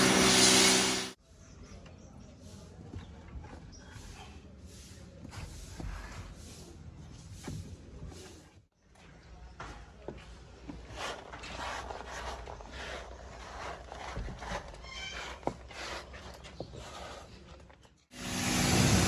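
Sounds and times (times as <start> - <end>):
high squeak: 14.7 - 15.4.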